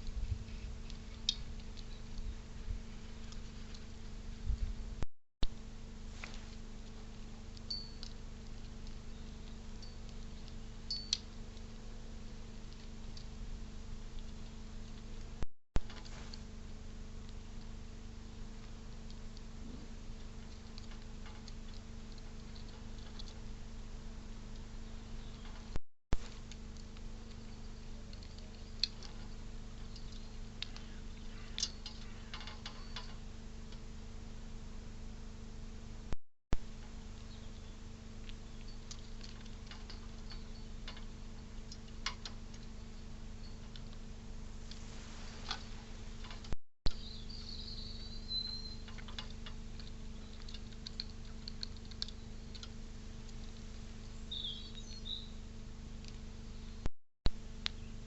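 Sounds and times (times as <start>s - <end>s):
low electrical hum: 0.0s - 58.0s
light ticks and clicks: 6.2s - 11.8s, 48.8s - 54.8s
high bird chirps: 46.9s - 48.9s, 54.2s - 55.4s.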